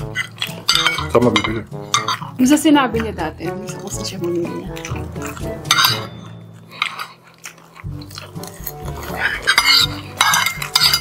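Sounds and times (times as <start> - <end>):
cutlery clicking on plates: 0.0 - 2.2, 4.8 - 7.1, 8.1 - 11.0
background music: 0.0 - 11.0
people chewing and biting: 0.0 - 11.0.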